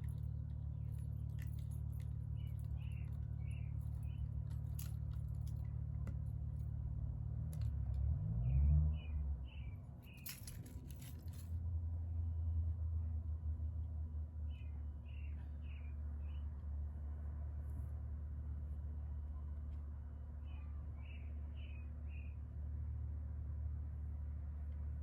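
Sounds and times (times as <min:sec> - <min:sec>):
bird singing: 0:02.3 - 0:04.4, 0:20.5 - 0:22.4.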